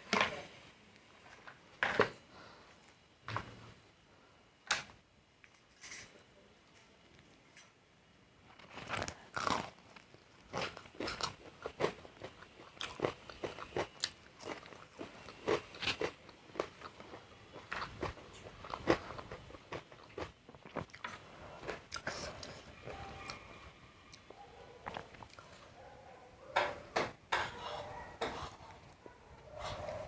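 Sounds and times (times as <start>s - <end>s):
crunchy food chewing: 8.5s - 25.7s.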